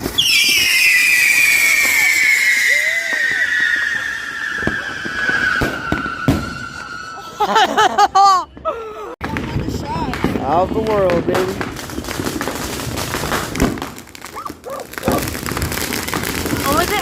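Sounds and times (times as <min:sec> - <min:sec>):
firework whistling: 0:00.0 - 0:07.6, 0:11.7 - 0:17.0
people whooping: 0:00.2 - 0:07.6, 0:14.2 - 0:15.4.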